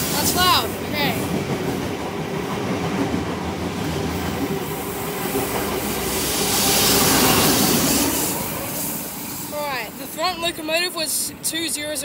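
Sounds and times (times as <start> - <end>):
diesel train passing: 0.0 - 12.0.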